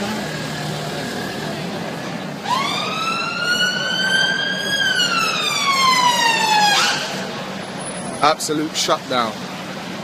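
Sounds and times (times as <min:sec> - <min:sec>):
siren wailing: 0:02.4 - 0:07.2.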